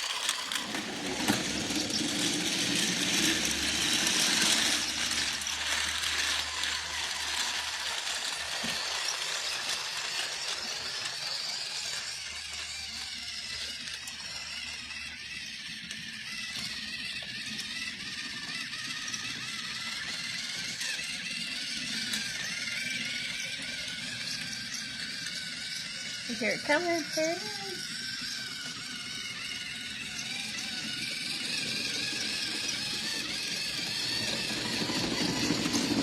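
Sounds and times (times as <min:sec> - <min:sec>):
wheels rattling on track: 0:00.0 - 0:07.7, 0:30.7 - 0:36.0
toy train motor whirring: 0:00.0 - 0:36.0.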